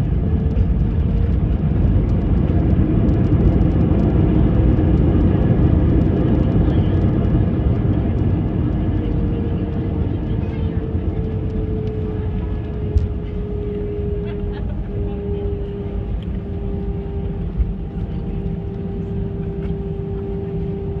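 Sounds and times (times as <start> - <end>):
jet engine cabin rumble: 0.0 - 21.0
whining tone: 8.1 - 21.0.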